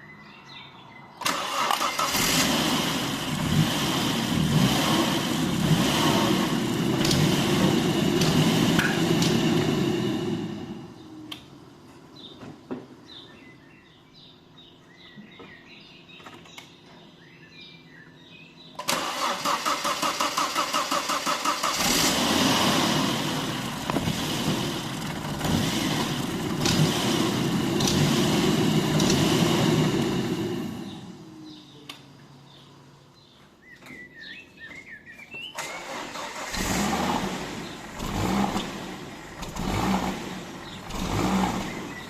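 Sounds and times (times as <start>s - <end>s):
car starter cranking: 1.2s - 3.7s, 18.8s - 28.3s, 35.6s - 42.0s
car engine surging idle: 2.1s - 11.3s, 19.7s - 31.7s, 36.3s - 42.0s.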